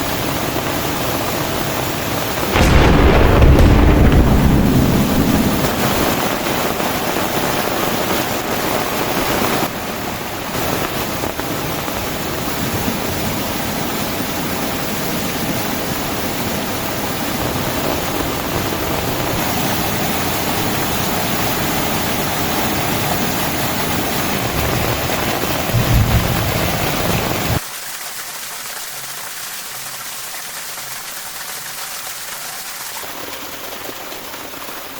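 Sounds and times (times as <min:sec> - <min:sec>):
heavy rain pouring: 0:01.8 - 0:07.7, 0:23.4 - 0:27.6
thunder clap rumbling: 0:02.4 - 0:07.6, 0:24.4 - 0:27.6
low boom: 0:02.5 - 0:07.3, 0:25.5 - 0:27.6.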